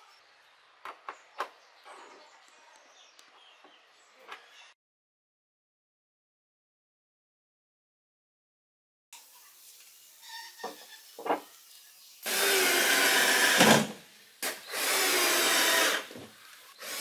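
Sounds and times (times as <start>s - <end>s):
cordless drill driving screws: 12.3s - 16.2s, 16.8s - 17.0s.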